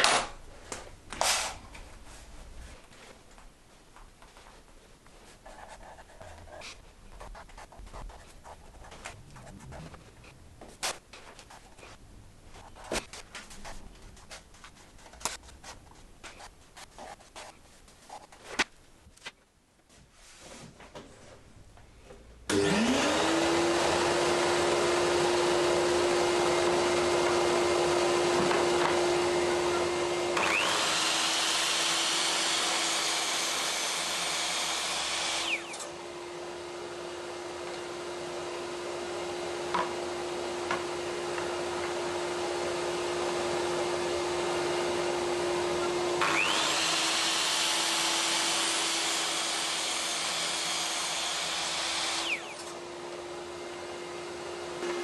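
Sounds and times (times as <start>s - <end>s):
power tool motor humming: 30.4s - 35.9s, 46.2s - 52.8s.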